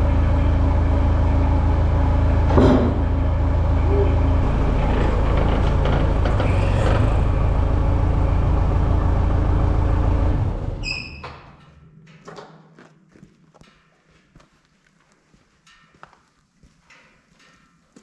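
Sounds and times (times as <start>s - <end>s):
sawmill engine running: 0.0s - 10.9s
short high squeak: 3.9s - 5.3s, 10.8s - 11.4s.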